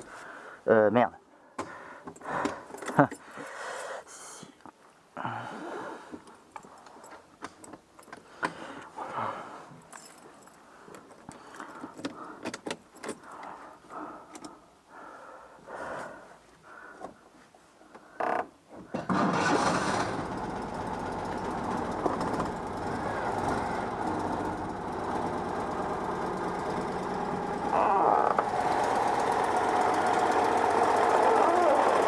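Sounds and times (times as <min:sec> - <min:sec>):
car engine running: 0:19.5 - 0:32.0.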